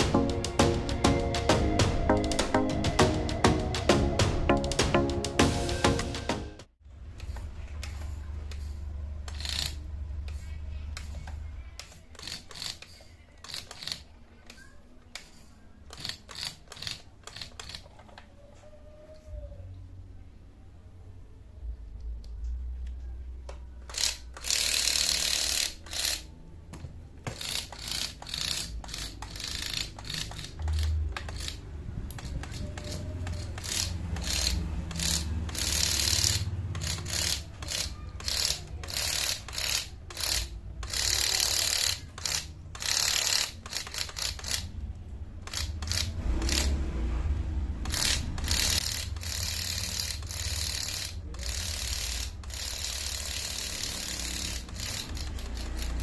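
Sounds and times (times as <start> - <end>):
toy car motor and gears whirring: 7.2 - 18.3, 23.8 - 26.4, 27.2 - 47.1, 47.8 - 56.0.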